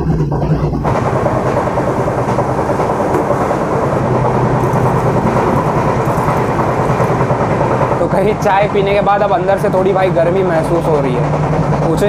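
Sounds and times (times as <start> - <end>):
low steady hum: 0.0 - 8.3
train rumbling and rattling on track: 0.0 - 12.0.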